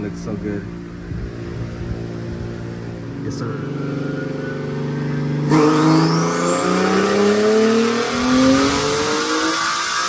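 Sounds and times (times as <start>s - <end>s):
car engine revving under load: 0.0s - 10.0s
high turbo whistle: 4.3s - 10.0s.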